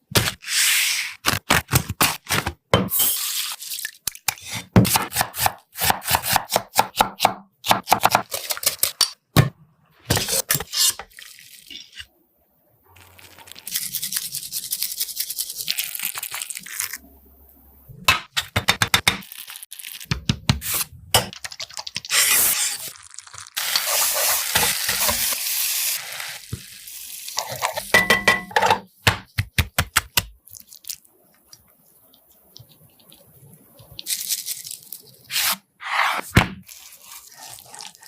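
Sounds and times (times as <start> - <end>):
steady cooking hiss: 23.6 - 27.9.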